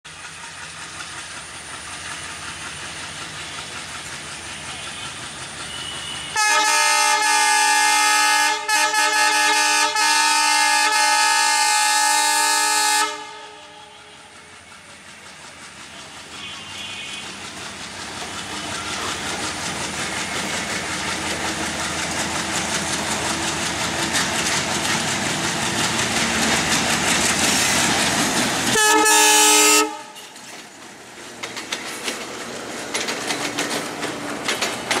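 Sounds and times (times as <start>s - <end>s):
train approaching: 0.1s - 35.0s
locomotive horn blast: 5.7s - 14.1s, 28.7s - 30.4s.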